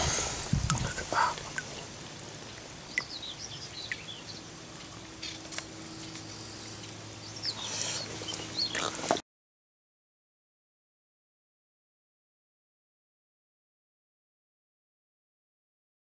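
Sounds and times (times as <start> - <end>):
birds chirping: 0.0 - 9.2.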